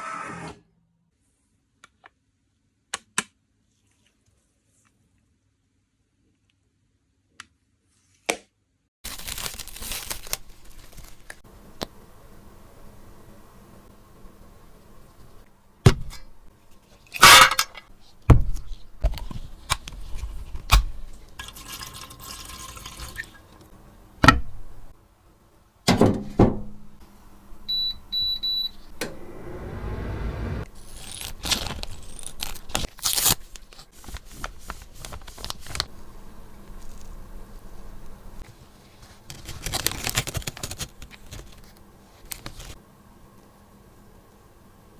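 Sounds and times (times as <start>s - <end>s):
low rushing noise: 29.0s - 30.7s.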